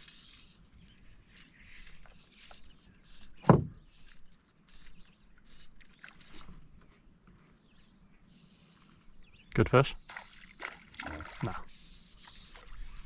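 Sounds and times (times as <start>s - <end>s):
sharp knock against canoe: 3.4s - 3.8s.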